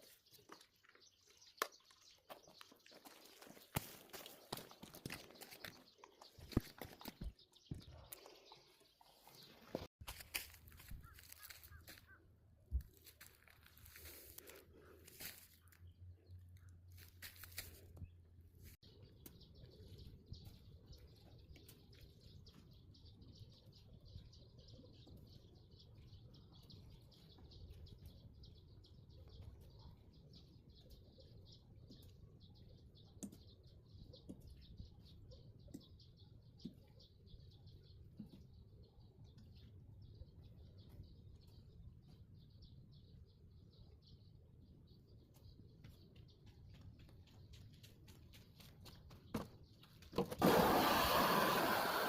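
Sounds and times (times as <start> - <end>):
faint bird chirping: 18.8 - 52.0.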